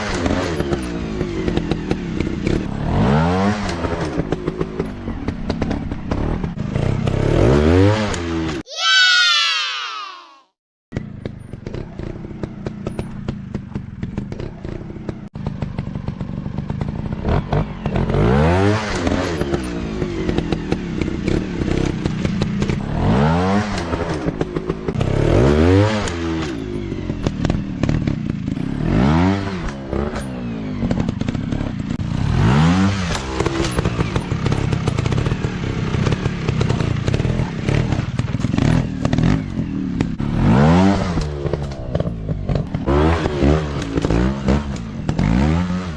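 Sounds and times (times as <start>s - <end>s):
dirt bike engine revving: 17.1s - 45.9s
clatter and thumps: 33.1s - 40.2s.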